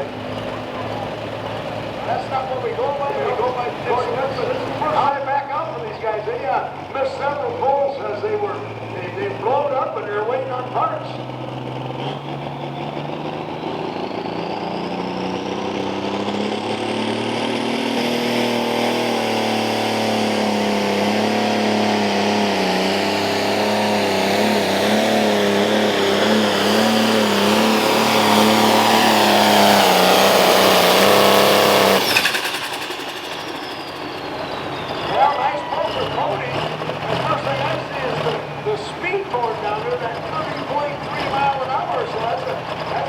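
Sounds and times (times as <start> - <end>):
tractor engine at full throttle: 0.0 - 43.0
high whine: 12.4 - 38.1.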